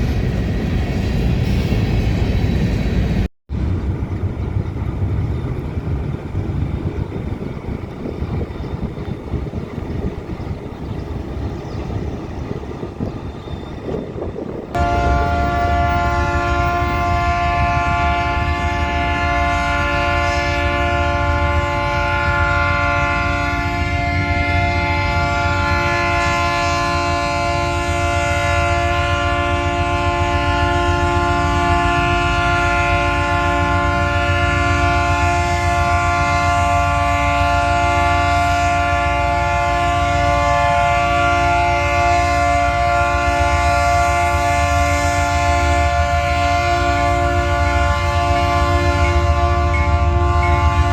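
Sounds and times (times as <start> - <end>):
diesel locomotive rumble: 0.0 - 50.9
chord of steady tones: 13.8 - 50.9.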